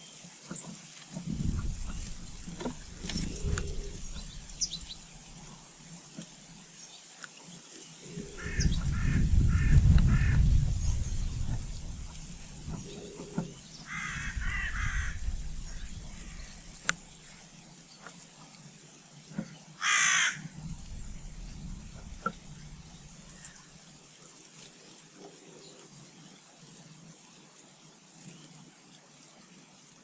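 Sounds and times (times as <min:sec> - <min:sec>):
low rumble: 0:01.2 - 0:05.8, 0:08.2 - 0:17.6, 0:20.4 - 0:23.8
crow calling harshly: 0:08.1 - 0:10.5, 0:13.9 - 0:16.8, 0:19.8 - 0:20.5.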